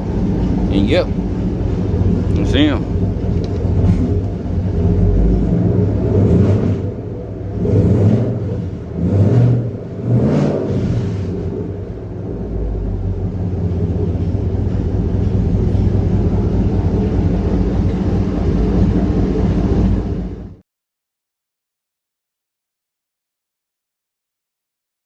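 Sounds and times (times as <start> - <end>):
car engine revving and idling: 0.0 - 20.6.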